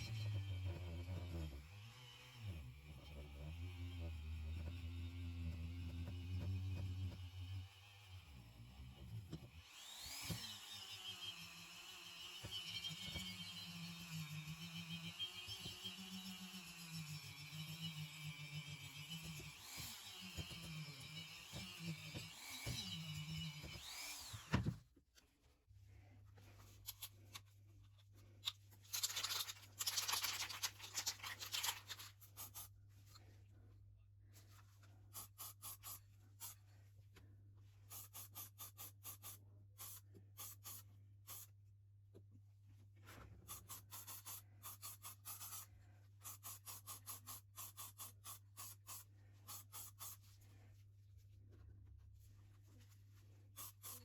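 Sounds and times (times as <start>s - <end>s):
rhythmic hand scraping strokes: 37.8s - 41.5s, 43.5s - 50.5s, 53.6s - 54.0s.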